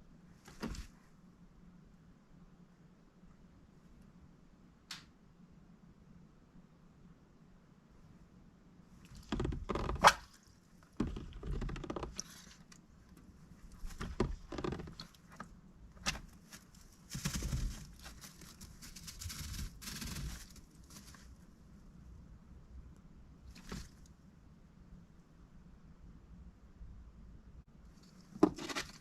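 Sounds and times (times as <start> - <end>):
duck pattering and scraping: 9.1 - 21.4, 23.5 - 24.1, 28.0 - 29.0.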